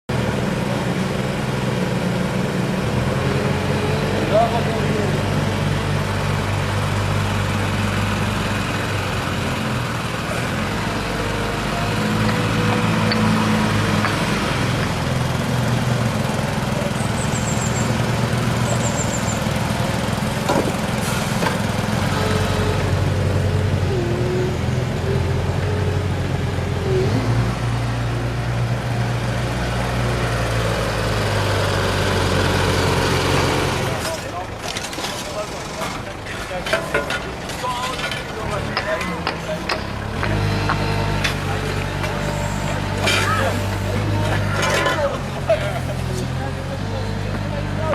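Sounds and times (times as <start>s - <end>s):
diesel engine droning: 0.1s - 47.9s.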